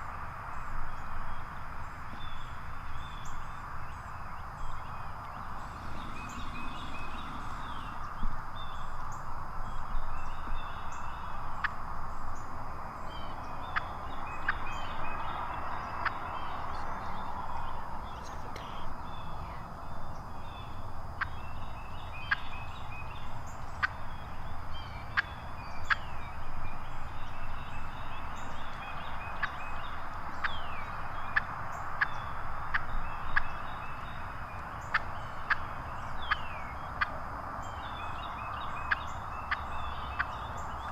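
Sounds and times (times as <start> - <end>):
wild turkey calling: 5.2 - 8.1, 34.8 - 37.2.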